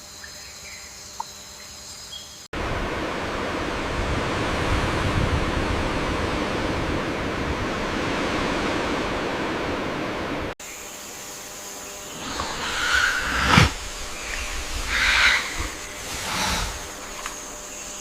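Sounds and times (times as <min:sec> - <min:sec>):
outdoor ambience: 0:07.9 - 0:18.0
steady rushing noise: 0:12.1 - 0:17.4.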